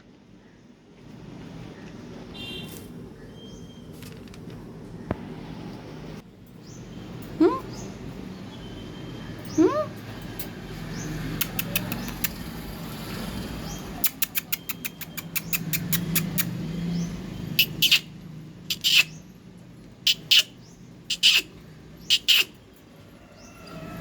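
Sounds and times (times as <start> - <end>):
parrot clicking: 11.3 - 12.5, 14.0 - 16.6
parrot screeching: 18.7 - 19.1, 21.1 - 21.5, 22.1 - 22.6.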